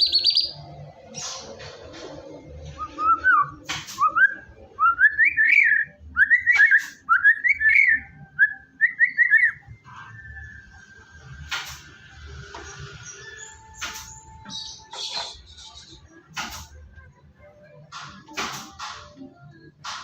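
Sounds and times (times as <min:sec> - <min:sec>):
bird whistling song: 0:00.0 - 0:01.4, 0:02.8 - 0:11.0, 0:12.8 - 0:16.1.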